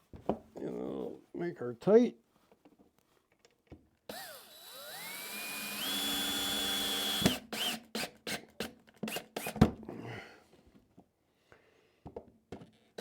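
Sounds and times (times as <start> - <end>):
power drill whine: 4.1 - 8.1.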